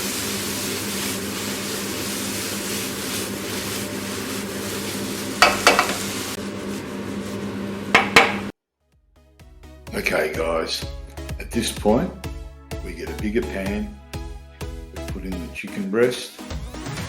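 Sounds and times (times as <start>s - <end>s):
mushrooms and onions sizzling in a pan: 0.0s - 8.5s
utensil scraping and knocking pan: 4.4s - 6.4s, 7.9s - 8.5s.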